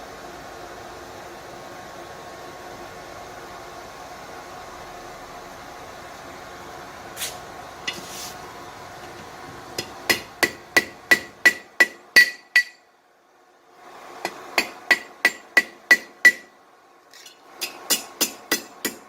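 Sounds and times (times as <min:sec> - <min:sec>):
steady background hum: 0:00.0 - 0:19.0
hammer striking steel on anvil: 0:09.8 - 0:12.9, 0:14.3 - 0:16.5, 0:17.2 - 0:19.0.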